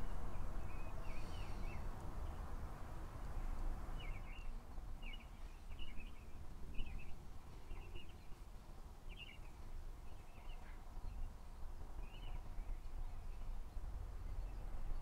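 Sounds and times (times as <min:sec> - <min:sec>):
low steady rumble: 0:00.0 - 0:09.0.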